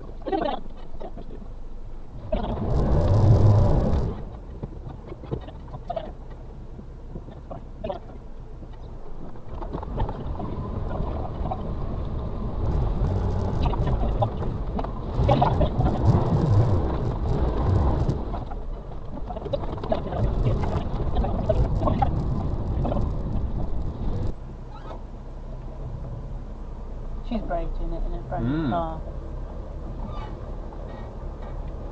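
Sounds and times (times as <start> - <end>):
truck engine under load: 2.1 - 7.5, 8.4 - 25.1.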